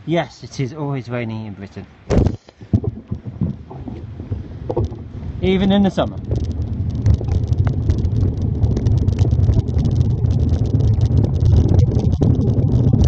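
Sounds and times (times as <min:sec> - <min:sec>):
small crackles: 0:02.1 - 0:13.0
wind buffeting microphone: 0:02.1 - 0:13.0.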